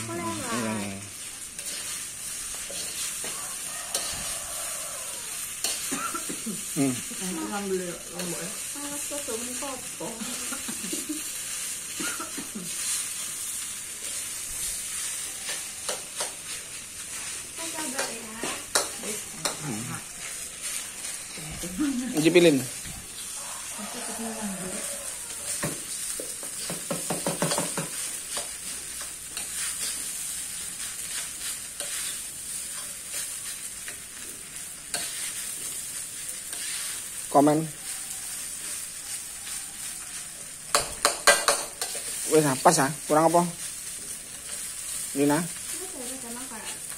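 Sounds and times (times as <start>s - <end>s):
rice sizzling in a wok: 0.0s - 46.9s
metal spatula stirring: 1.1s - 6.3s, 12.8s - 21.4s, 24.0s - 42.8s.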